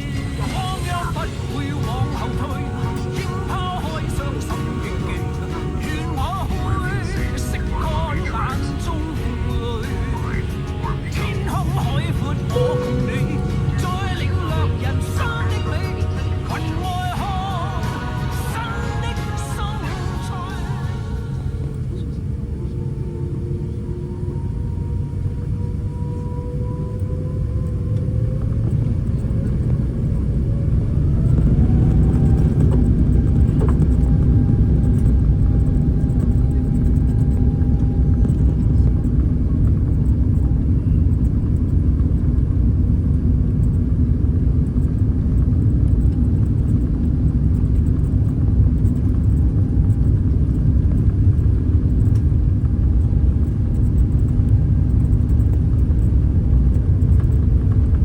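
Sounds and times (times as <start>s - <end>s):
aircraft cabin rumble: 0.0s - 58.0s
jet engines whining: 0.0s - 58.0s.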